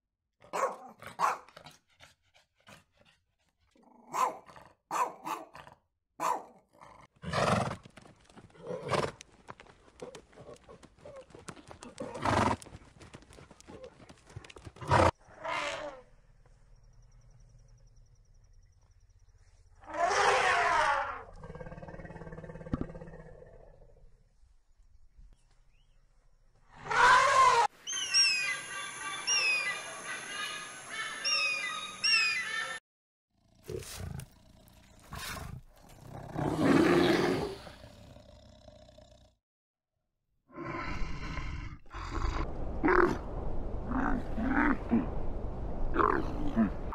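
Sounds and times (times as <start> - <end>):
horse hooves clicking: 7.2 - 15.1
bear growling: 33.4 - 39.4.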